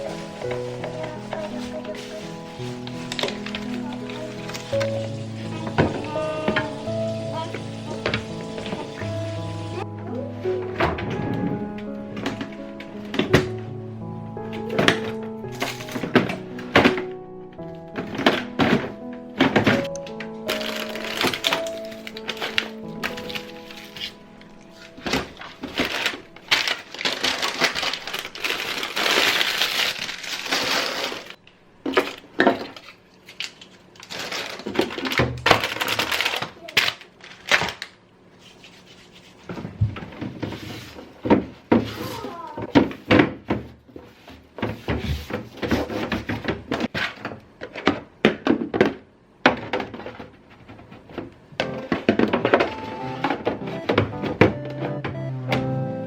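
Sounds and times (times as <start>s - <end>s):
household items knocking and clattering: 0.0s - 9.9s, 10.6s - 13.8s, 14.4s - 32.9s, 34.1s - 37.8s, 39.5s - 55.7s
plastic packaging rustling: 0.0s - 9.9s, 14.4s - 43.1s, 49.9s - 55.2s.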